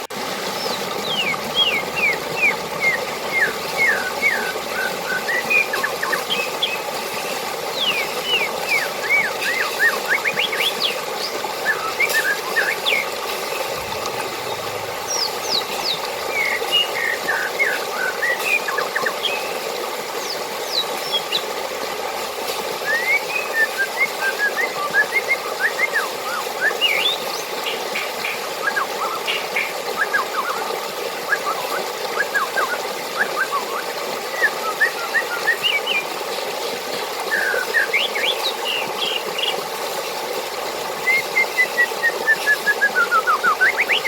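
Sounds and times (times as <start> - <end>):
rushing water: 0.0 - 44.0
birds chirping: 0.4 - 21.6, 37.3 - 39.6.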